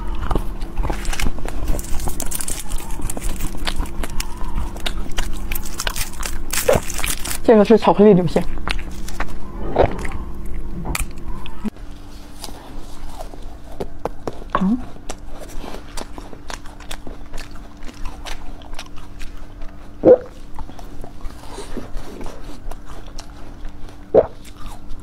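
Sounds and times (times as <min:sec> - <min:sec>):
wet chewing of fruit: 0:00.0 - 0:25.0
mouth clicks and smacks: 0:24.2 - 0:24.4.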